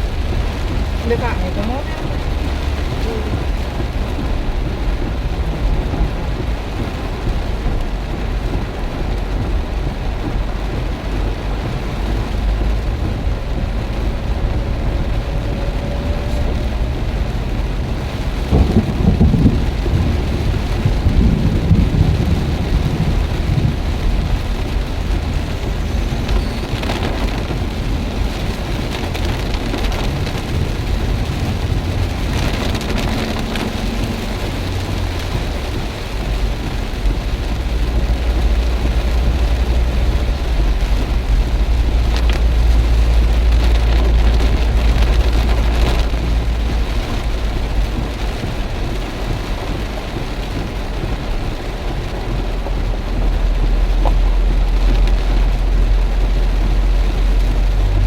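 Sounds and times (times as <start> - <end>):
heavy rain pouring: 0.0 - 58.0
strong wind rumble: 0.0 - 58.0.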